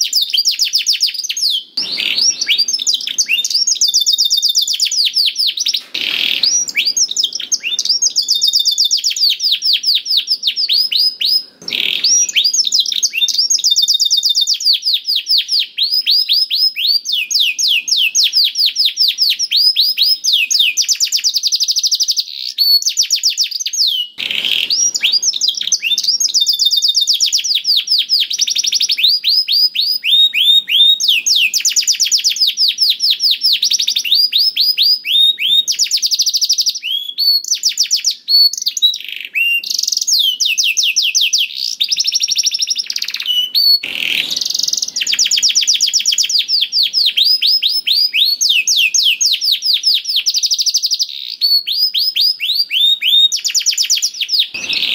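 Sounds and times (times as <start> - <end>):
canary singing trills: 0.0 - 54.9
canary harsh rasps: 1.8 - 3.7, 5.4 - 8.9, 24.2 - 26.8, 43.3 - 46.4, 54.5 - 54.9.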